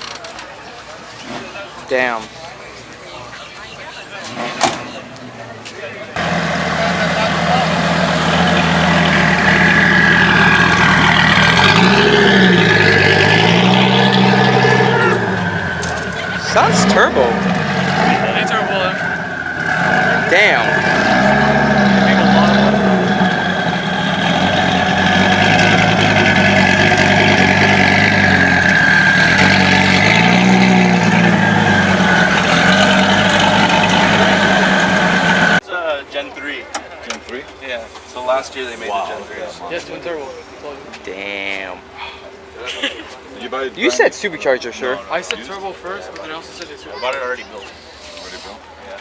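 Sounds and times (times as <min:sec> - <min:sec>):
car engine revving: 0:06.2 - 0:35.6.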